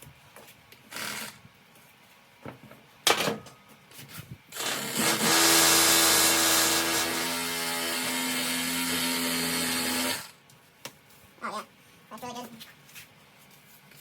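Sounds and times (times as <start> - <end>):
reciprocating saw cutting foam: 4.6 - 10.4.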